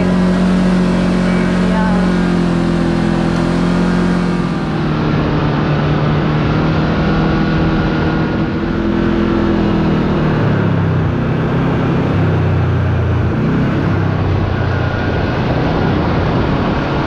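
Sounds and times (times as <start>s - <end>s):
vehicle engine running: 0.0s - 17.0s
wind noise: 0.0s - 17.0s.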